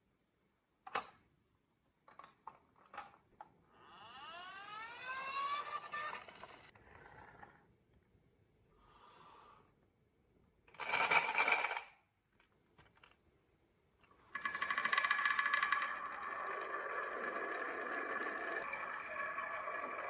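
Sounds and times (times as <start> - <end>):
toy electronic siren: 3.9 - 6.7
marbles rolling on wooden run: 4.5 - 6.7, 10.8 - 11.9, 14.3 - 20.0.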